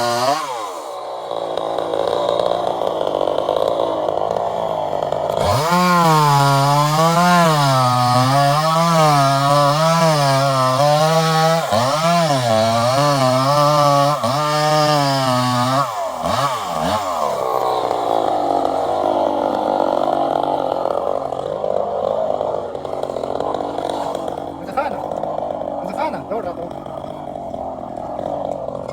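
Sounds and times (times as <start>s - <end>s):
chainsaw cutting: 0.0s - 28.9s.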